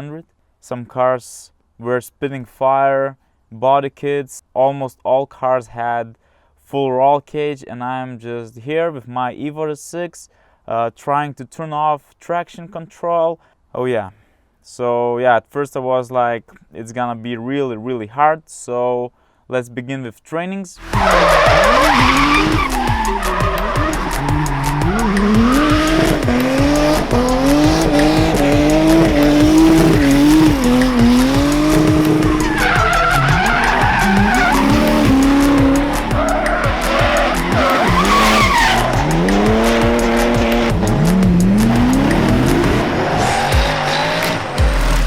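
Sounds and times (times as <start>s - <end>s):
tyres squealing: 20.8s - 44.8s
car engine revving: 20.8s - 45.0s.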